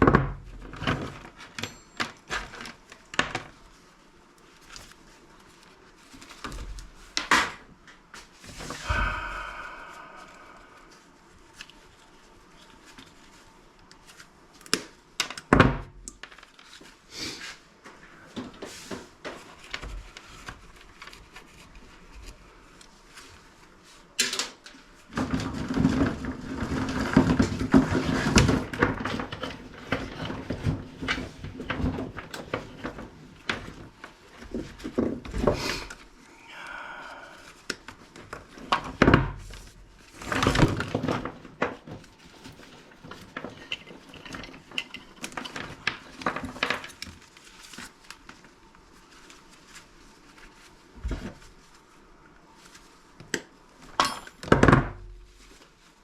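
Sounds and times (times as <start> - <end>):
plastic and metal parts clattering: 0.0 - 3.6, 38.6 - 47.8
steady low hum: 8.5 - 12.7.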